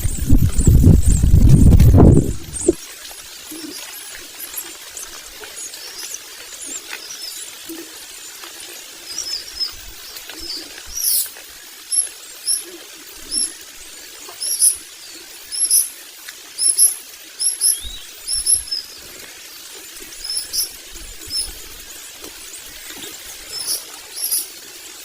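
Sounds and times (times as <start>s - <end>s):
bird chicks squeaky calls: 9.1s - 13.7s, 14.4s - 14.9s, 15.5s - 15.9s, 16.6s - 19.1s, 20.0s - 21.8s, 22.5s - 24.6s.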